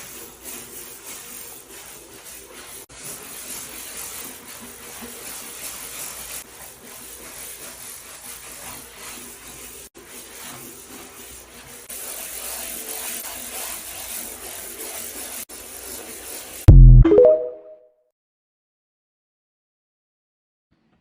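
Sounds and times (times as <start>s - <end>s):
scrubbing and rubbing: 0.0s - 16.7s.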